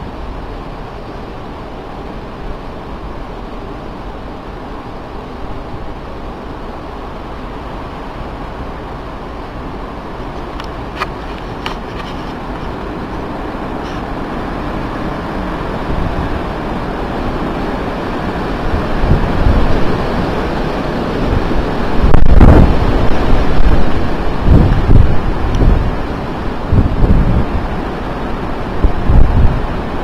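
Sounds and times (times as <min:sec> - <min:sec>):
strong wind blowing: 0:00.0 - 0:30.0
wind buffeting microphone: 0:00.0 - 0:30.0.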